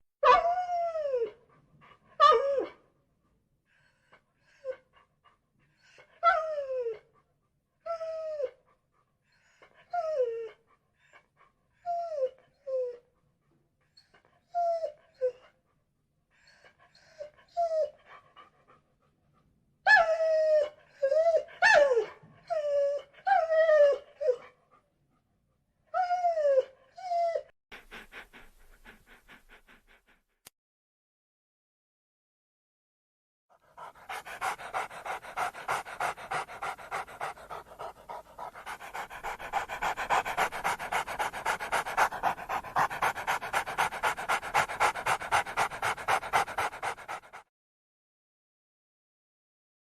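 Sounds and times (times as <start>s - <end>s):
dog whining: 33.7s - 47.4s.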